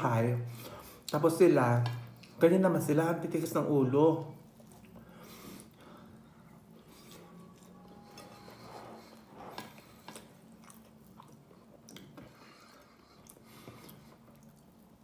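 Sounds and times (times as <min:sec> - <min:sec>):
person chewing: 0:04.3 - 0:15.0.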